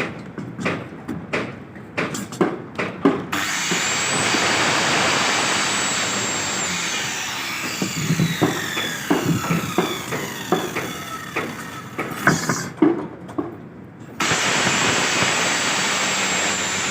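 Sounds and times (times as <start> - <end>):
power tool cutting wood: 3.3 - 12.1, 14.2 - 16.9.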